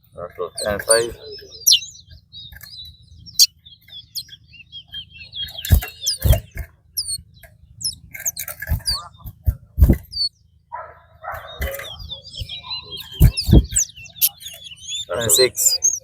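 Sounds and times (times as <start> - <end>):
songbirds chirping and warbling: 0.0 - 16.0
dull thumps: 5.6 - 10.3, 11.6 - 14.6.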